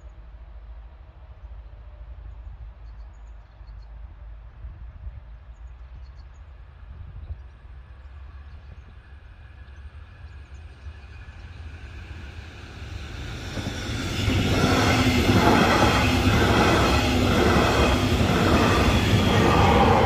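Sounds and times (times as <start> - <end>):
train passing over crossing: 8.2 - 20.0.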